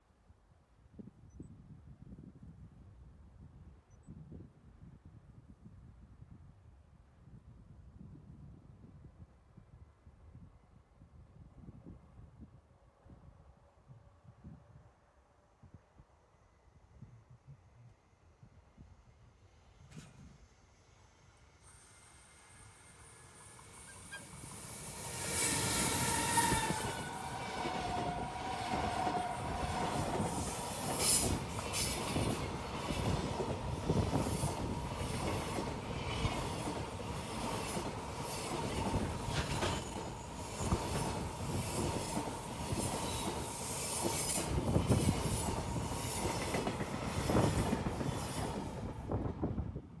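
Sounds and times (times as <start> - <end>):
high wheel squeal: 21.8 - 32.5, 36.2 - 46.5
train wheels clacking on rail joints: 23.3 - 49.0.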